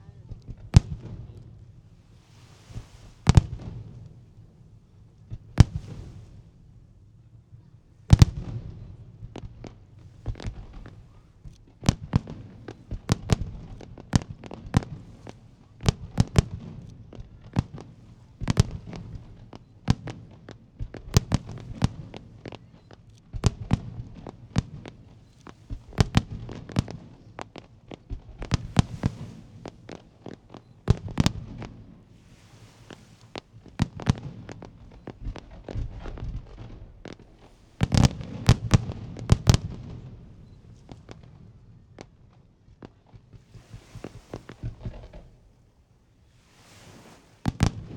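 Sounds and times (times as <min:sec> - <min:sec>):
fireworks bursting with sharp bangs: 0:00.0 - 0:47.9
short hiss: 0:32.0 - 0:35.2, 0:43.4 - 0:47.9.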